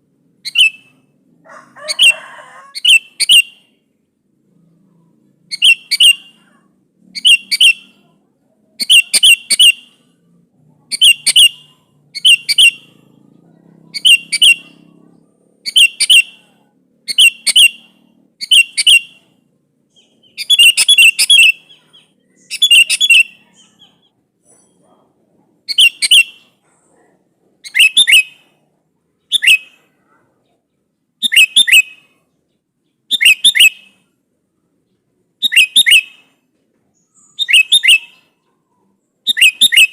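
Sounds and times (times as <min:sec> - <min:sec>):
bird chattering calls: 0:00.4 - 0:01.0, 0:02.8 - 0:03.7, 0:05.5 - 0:08.2, 0:08.8 - 0:10.1, 0:10.8 - 0:24.8, 0:25.7 - 0:26.6, 0:27.6 - 0:28.6.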